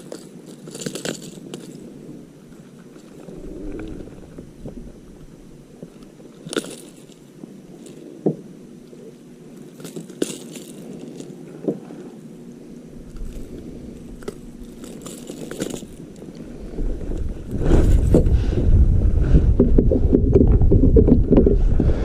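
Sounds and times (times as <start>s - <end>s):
wind rumble on microphone: 3.2s - 6.0s, 16.4s - 22.0s.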